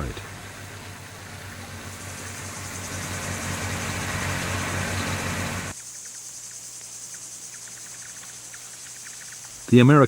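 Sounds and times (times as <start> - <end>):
heavy engine rumbling: 0.0 - 5.8
insects chirping: 0.0 - 10.0.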